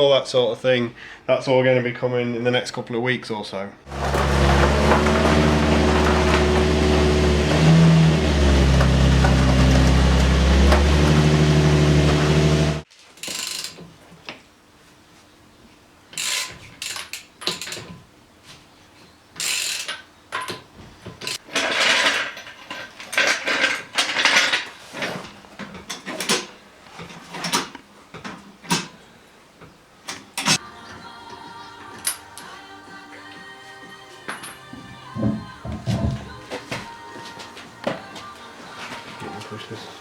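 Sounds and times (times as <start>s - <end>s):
car engine running: 3.9s - 12.8s.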